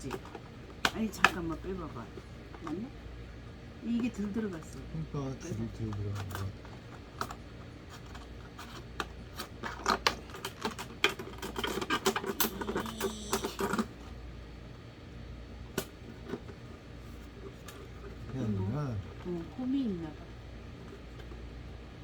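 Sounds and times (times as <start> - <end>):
plastic parts clicking and rattling: 8.0 - 13.9.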